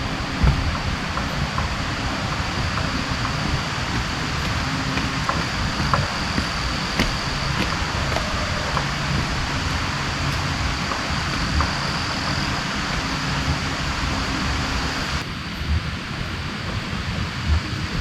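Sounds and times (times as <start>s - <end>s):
heavy rain falling: 0.0s - 15.2s
uneven low rumble: 0.0s - 18.0s.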